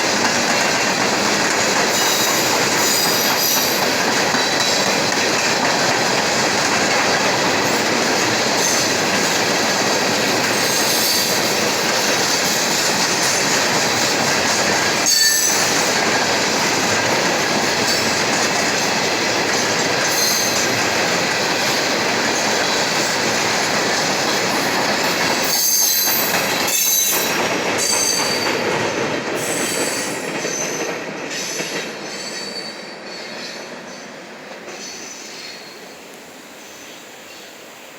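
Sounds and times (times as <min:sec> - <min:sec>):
train wheels clattering on rails: 0:00.0 - 0:36.3
high-pitched wheel squeal: 0:15.0 - 0:15.6, 0:25.4 - 0:28.4.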